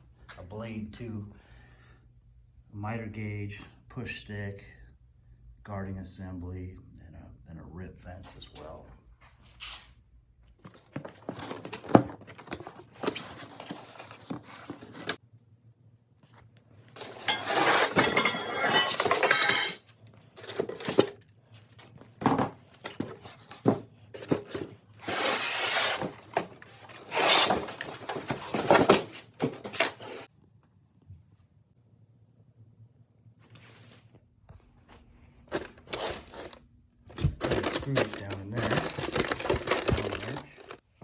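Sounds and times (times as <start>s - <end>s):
packaging rustling and tearing: 10.6s - 15.2s, 24.3s - 30.3s, 35.5s - 40.8s
metal pieces clinking: 17.0s - 19.8s, 35.5s - 40.8s.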